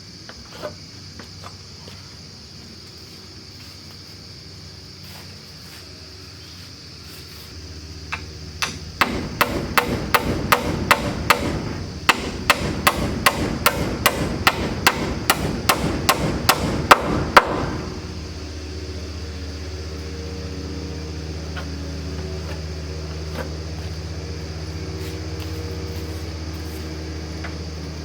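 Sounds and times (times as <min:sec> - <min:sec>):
engine hum: 0:00.0 - 0:28.0
hammer striking wooden boards: 0:08.6 - 0:18.1.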